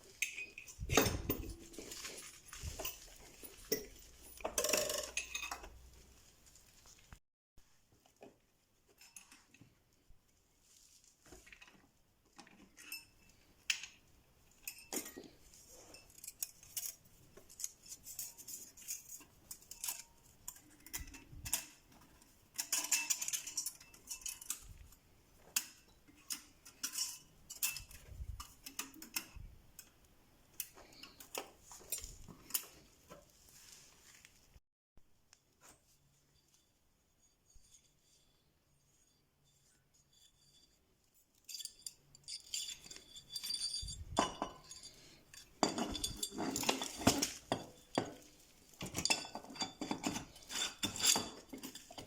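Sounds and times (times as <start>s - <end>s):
metal tools clinking: 0.0s - 5.8s, 14.5s - 25.0s, 25.6s - 29.9s, 39.5s - 52.0s
metal parts rattling: 22.5s - 24.8s, 41.4s - 52.0s.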